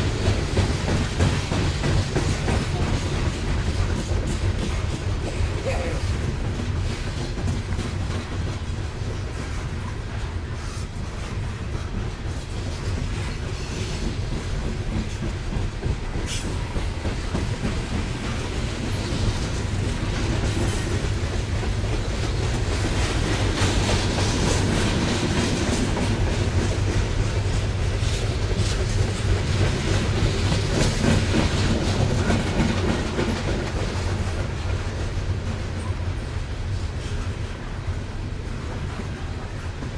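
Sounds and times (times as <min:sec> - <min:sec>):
wheels clacking over rails: 0:00.0 - 0:36.2
freight train rumbling past: 0:00.0 - 0:39.9.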